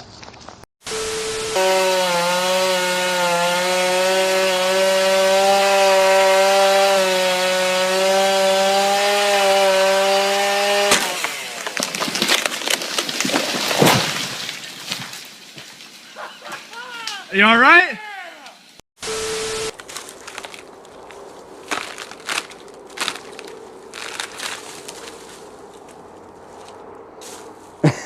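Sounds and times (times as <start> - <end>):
chainsaw cutting wood: 0.9 - 13.8, 19.0 - 20.7, 21.7 - 25.3
sharp cracks and knocks: 10.7 - 16.0, 19.7 - 26.0.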